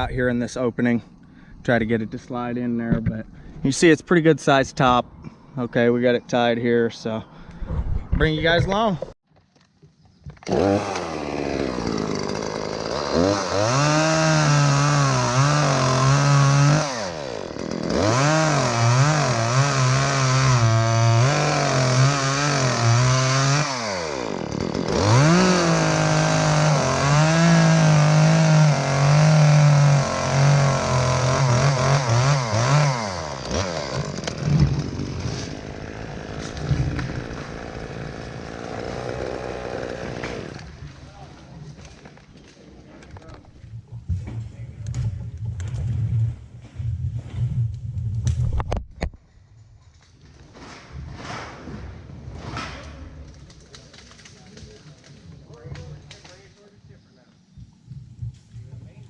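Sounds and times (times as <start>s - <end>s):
chainsaw cutting at full throttle: 10.4s - 40.8s.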